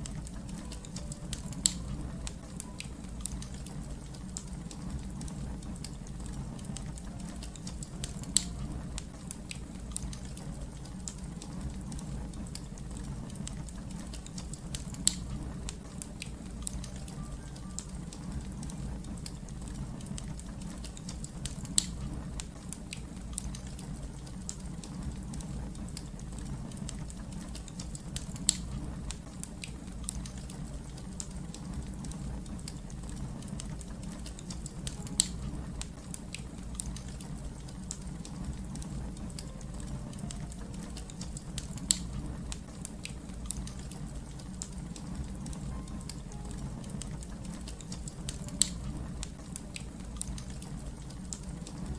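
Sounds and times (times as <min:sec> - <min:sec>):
wood fire crackling: 0:00.0 - 0:51.9
loud fire pops: 0:11.2 - 0:16.9, 0:18.5 - 0:30.7.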